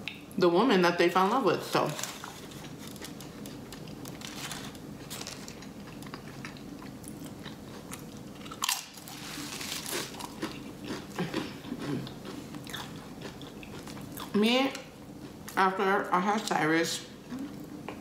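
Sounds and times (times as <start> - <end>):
person chewing crunchy food: 2.0 - 14.4.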